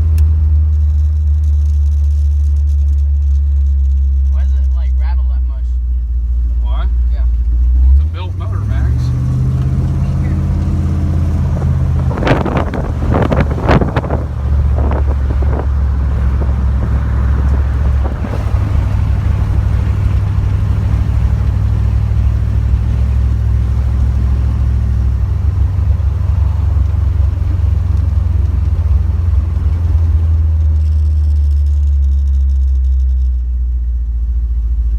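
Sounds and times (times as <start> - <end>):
car engine and road drone: 0.0 - 34.9
wind noise: 9.0 - 30.5.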